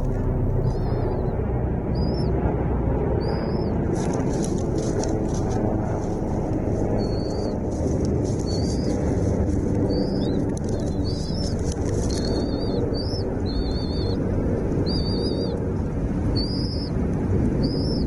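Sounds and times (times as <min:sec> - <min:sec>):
steady low rumble: 0:00.0 - 0:18.0
small bird chirping: 0:00.6 - 0:02.4, 0:03.2 - 0:05.6, 0:06.9 - 0:15.6, 0:16.3 - 0:17.0, 0:17.6 - 0:18.0.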